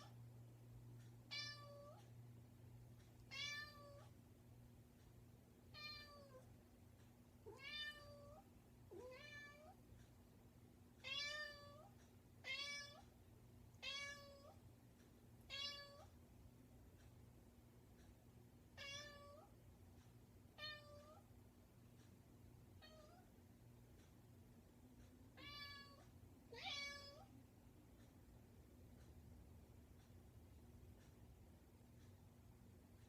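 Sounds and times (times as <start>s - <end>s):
cat meowing: 3.3s - 4.1s, 26.6s - 27.2s.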